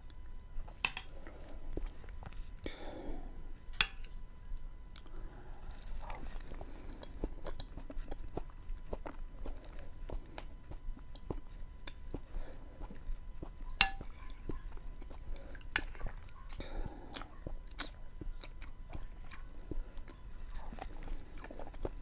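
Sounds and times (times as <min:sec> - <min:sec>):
chewing food close up: 0:04.5 - 0:22.0.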